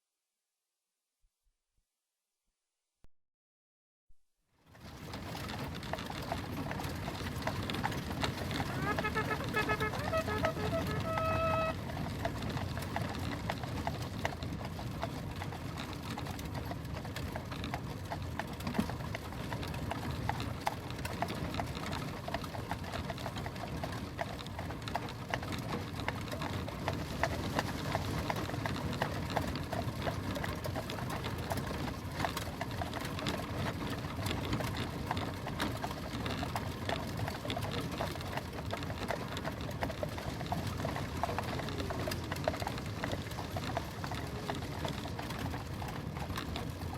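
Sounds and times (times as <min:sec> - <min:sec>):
wheels rumbling: 0:04.7 - 0:46.9
horse hooves clattering: 0:04.8 - 0:46.9
carriage creaking: 0:07.5 - 0:11.8.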